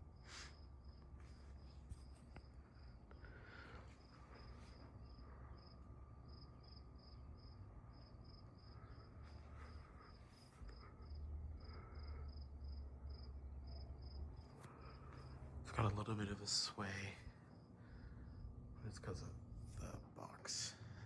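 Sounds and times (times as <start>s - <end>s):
cricket chirping: 0.0s - 15.5s, 17.4s - 18.6s
ceiling fan rumble: 0.0s - 21.0s.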